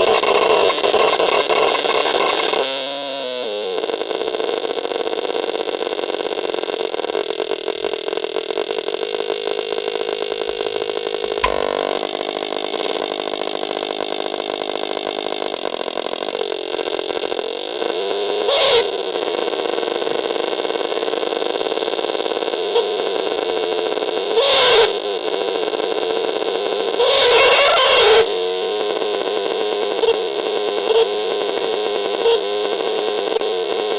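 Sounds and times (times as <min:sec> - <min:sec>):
sharp click: 0:11.4 - 0:13.2
high whistling electronic tones: 0:11.4 - 0:14.8.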